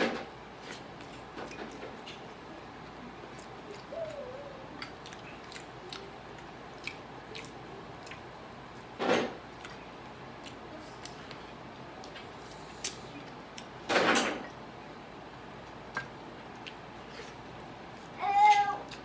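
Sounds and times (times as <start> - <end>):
chewing grilled chicken: 0.6 - 13.8, 15.4 - 19.0
wet mouth clicks and smacks: 4.8 - 8.2.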